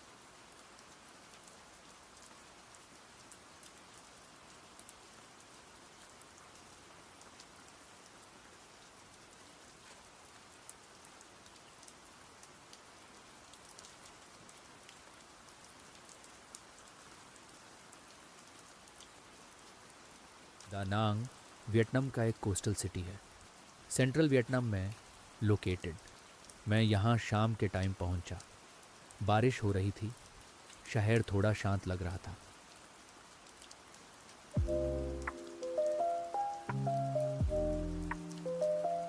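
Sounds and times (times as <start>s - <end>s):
rain hiss: 0.0s - 39.0s
raindrop ticks: 20.5s - 39.0s.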